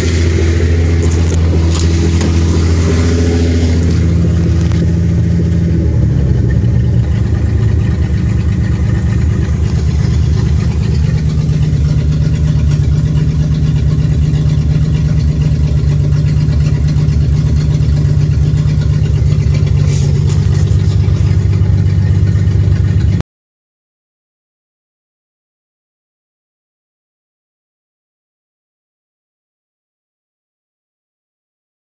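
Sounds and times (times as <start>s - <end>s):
car engine idling roughly: 0.0s - 23.2s.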